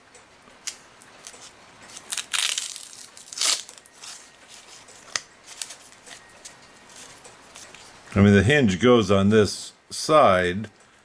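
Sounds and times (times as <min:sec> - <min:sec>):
paper crinkling and rustling: 0:01.2 - 0:08.0.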